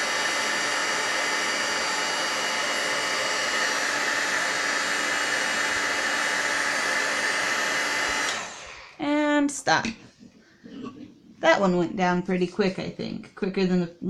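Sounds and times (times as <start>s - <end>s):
heat gun blowing with whine: 0.0s - 9.0s.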